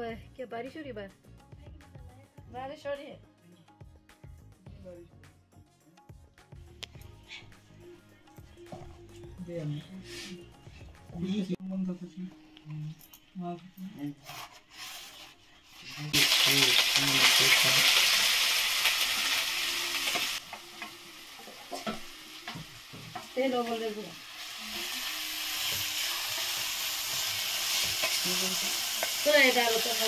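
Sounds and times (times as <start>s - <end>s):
food sizzling in hot oil: 14.7s - 30.0s.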